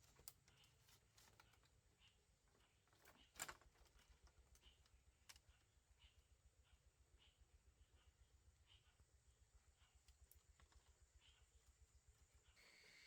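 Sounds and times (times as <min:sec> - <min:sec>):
faint clicks and light knocks: 0:10.0 - 0:12.4.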